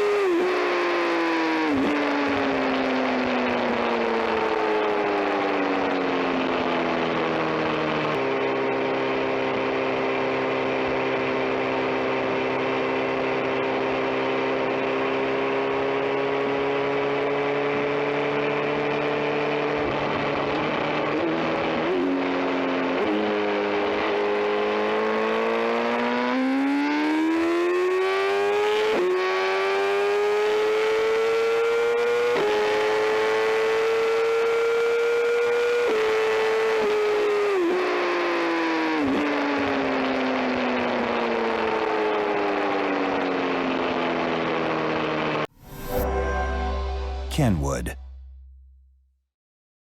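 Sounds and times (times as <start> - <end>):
motorcycle engine accelerating: 0.0 - 4.2, 6.0 - 38.0.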